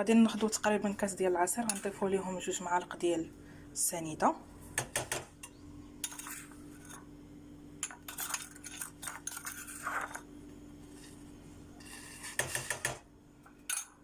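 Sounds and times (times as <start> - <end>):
metal spoon scraping pot: 1.5 - 2.1, 5.5 - 7.1, 7.8 - 10.2.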